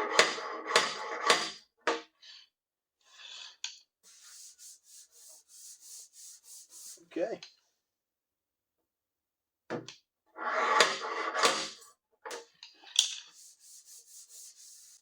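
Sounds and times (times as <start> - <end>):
dent puller clacks and scrapes: 0.0 - 1.6, 10.4 - 13.3.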